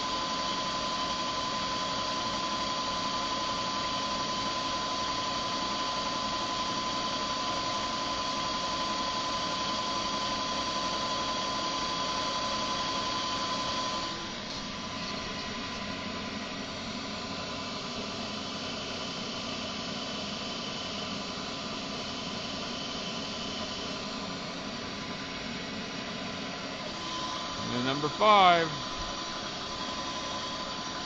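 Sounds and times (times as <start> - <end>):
milling machine hum and whine: 0.0 - 31.0.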